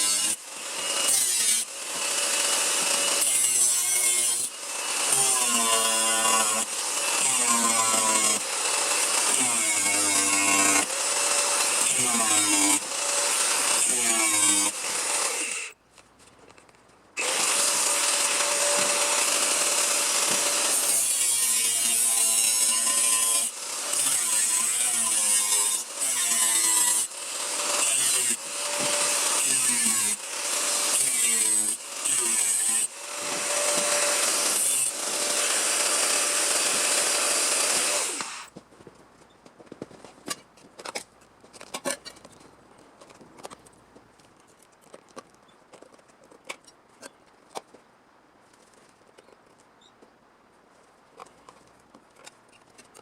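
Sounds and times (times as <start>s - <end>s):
power tool working sheet steel: 0.0s - 15.8s, 17.2s - 38.5s.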